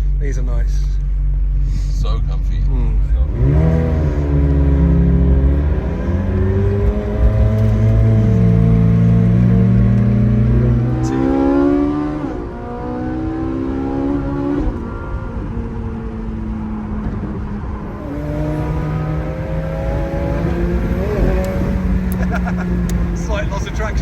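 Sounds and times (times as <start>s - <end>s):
car engine accelerating hard: 1.6s - 24.0s.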